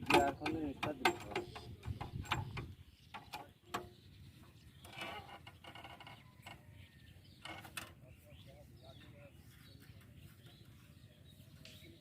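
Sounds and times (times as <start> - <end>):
faint metallic clicks and knocks: 0.0 - 4.0.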